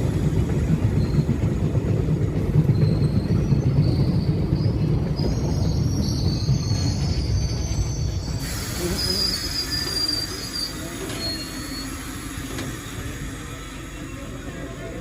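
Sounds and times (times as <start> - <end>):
train rumbling on rails: 0.0 - 15.0
metal wheel squeal: 5.2 - 12.3.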